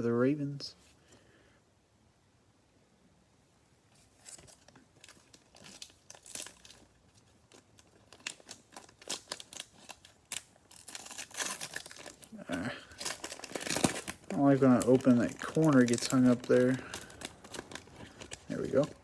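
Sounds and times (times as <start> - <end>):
plastic wrapper tearing and crinkling: 4.0 - 19.0.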